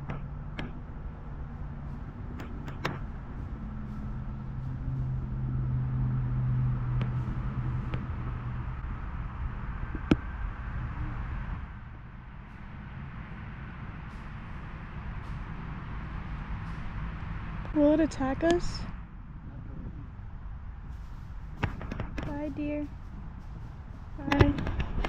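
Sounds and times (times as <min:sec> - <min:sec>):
car driving past: 0:01.1 - 0:19.2.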